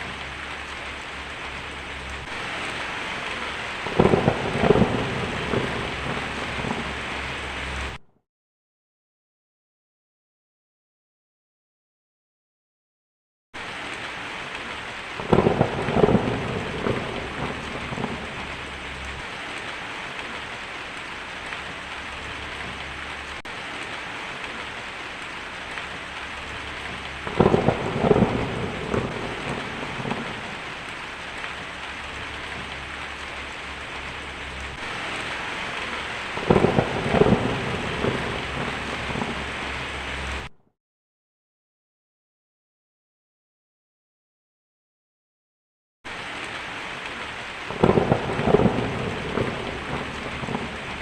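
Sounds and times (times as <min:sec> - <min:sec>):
steady rain: 0:00.0 - 0:08.0, 0:13.6 - 0:40.5, 0:46.1 - 0:51.0
thunder cracks and rumble: 0:00.0 - 0:08.0, 0:13.6 - 0:40.5, 0:47.6 - 0:51.0.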